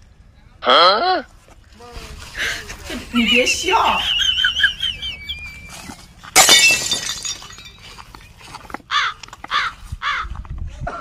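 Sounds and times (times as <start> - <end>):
crow cawing: 8.9 - 10.4.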